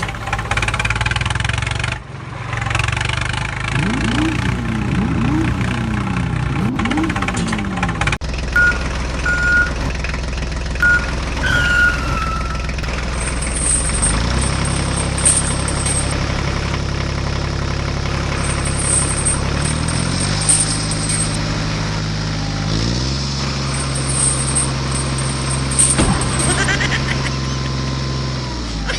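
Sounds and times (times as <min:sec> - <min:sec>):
heavy vehicle engine revving: 0:00.0 - 0:28.9
short high beeps: 0:08.6 - 0:09.9, 0:10.8 - 0:12.7
falling whistle: 0:10.8 - 0:12.8.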